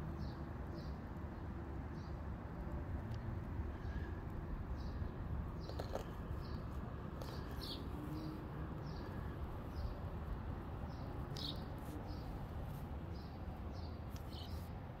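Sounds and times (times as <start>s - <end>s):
bird chirping: 4.8s - 6.6s, 7.2s - 10.0s, 10.8s - 14.7s.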